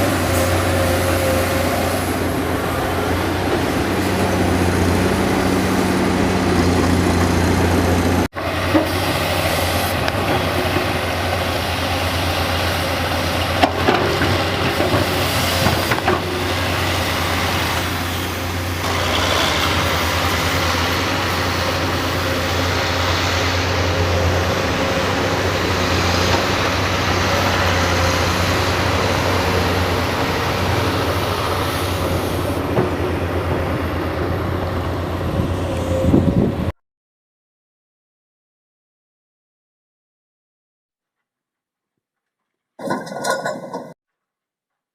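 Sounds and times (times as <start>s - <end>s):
diesel engine droning: 0.0s - 36.7s
metal parts knocking: 42.8s - 43.9s.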